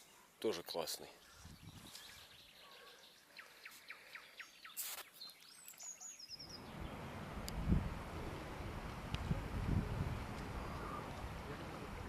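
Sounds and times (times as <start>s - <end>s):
faint bird chirps: 1.2s - 6.9s
wind rumble on microphone: 6.6s - 12.0s.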